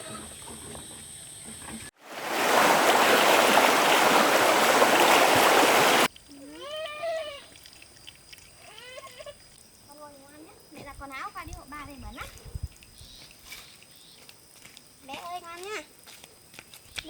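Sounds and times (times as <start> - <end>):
water running hard: 2.0 - 6.1.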